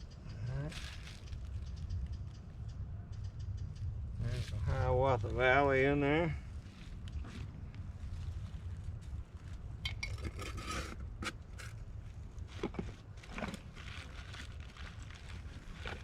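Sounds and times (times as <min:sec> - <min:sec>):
steady low rumble: 0:00.0 - 0:16.0
rustling: 0:00.7 - 0:02.3, 0:06.4 - 0:16.0
bottles and jars clinking: 0:09.9 - 0:10.7.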